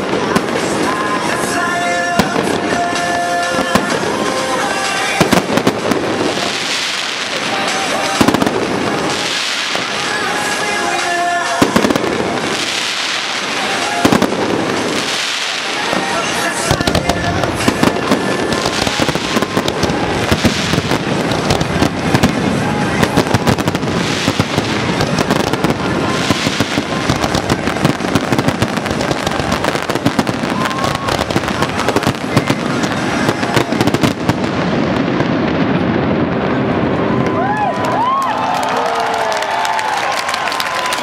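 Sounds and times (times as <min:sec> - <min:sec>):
fireworks bangs and crackling: 0:00.0 - 0:41.0.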